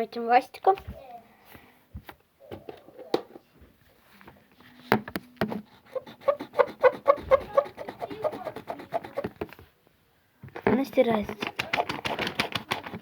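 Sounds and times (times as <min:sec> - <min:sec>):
eraser rubbing on paper: 0:05.6 - 0:09.4, 0:11.4 - 0:13.0.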